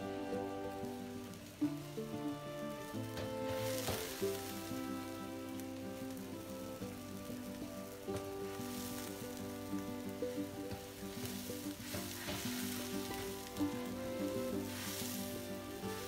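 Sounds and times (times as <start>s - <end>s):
background music: 0.0s - 16.0s
food sizzling in a wok: 0.0s - 16.0s.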